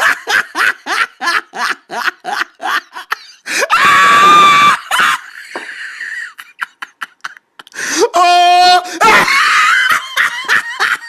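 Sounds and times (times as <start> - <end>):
person laughing: 0.0 - 7.8, 8.9 - 11.0
high-pitched scream: 3.6 - 5.0.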